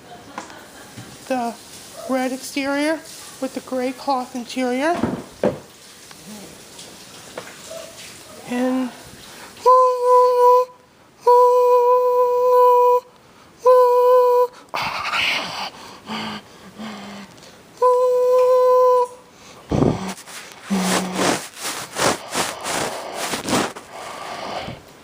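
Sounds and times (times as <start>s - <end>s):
thump: 5.0s - 5.7s.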